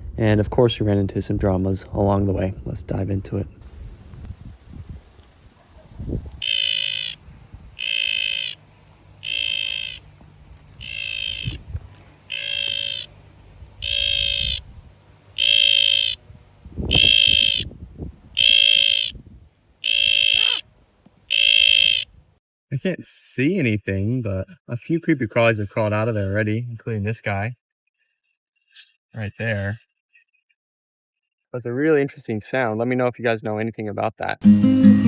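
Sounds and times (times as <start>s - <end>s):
animal-like call from inside log: 5.7s - 7.2s, 7.8s - 8.6s, 9.2s - 10.0s, 10.8s - 11.6s, 12.3s - 13.1s, 13.8s - 14.6s, 15.4s - 16.2s, 16.9s - 17.6s, 18.4s - 19.1s, 19.8s - 20.6s, 21.3s - 22.1s.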